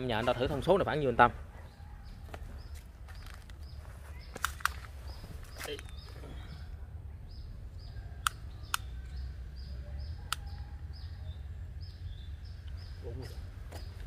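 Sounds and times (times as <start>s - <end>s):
bird chirping: 0.0s - 14.0s
sharp clicks: 4.4s - 6.0s, 8.2s - 9.2s, 10.3s - 10.6s.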